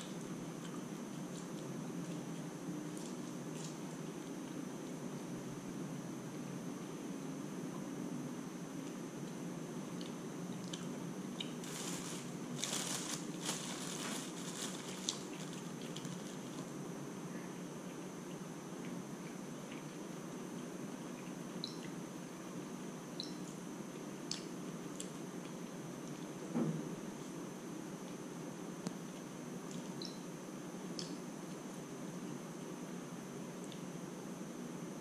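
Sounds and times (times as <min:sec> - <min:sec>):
faint high whine: 0:00.0 - 0:35.0
steady low hum: 0:00.0 - 0:35.0
fried insect crunching: 0:10.0 - 0:16.8.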